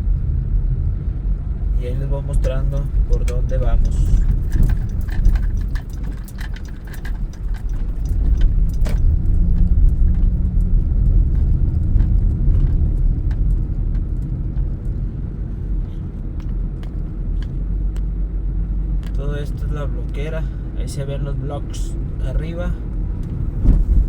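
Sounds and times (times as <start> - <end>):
low rumble of engine and road: 0.0 - 24.0
small clicks and rattles: 2.4 - 15.0.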